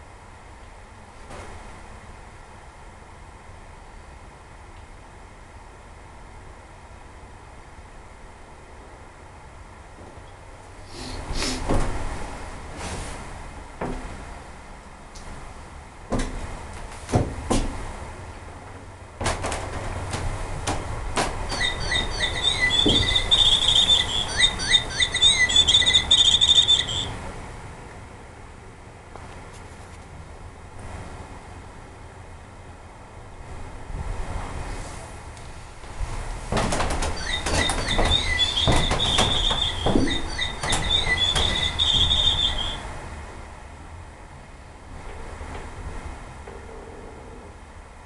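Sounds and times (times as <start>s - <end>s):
sharp knocks: 19.2s - 27.0s, 36.5s - 42.8s
bird chirps and trills: 21.5s - 27.2s, 37.2s - 42.8s.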